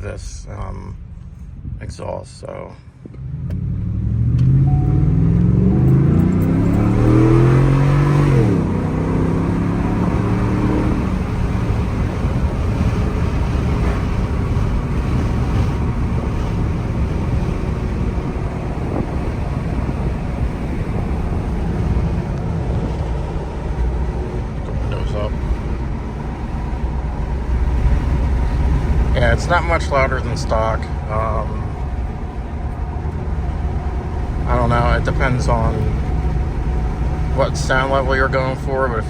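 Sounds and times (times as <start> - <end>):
road noise: 0.0 - 39.0
truck engine accelerating: 3.0 - 39.0
wind noise: 4.4 - 29.5.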